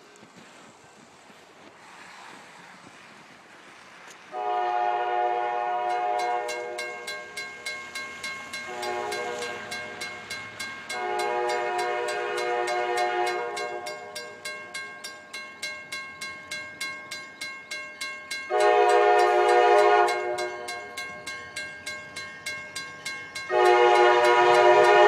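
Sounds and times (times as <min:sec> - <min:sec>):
locomotive air horn: 0:04.3 - 0:07.0, 0:08.7 - 0:09.9, 0:10.9 - 0:14.2, 0:18.5 - 0:20.7, 0:23.5 - 0:25.0
train wheels clicking over joints: 0:05.7 - 0:25.0.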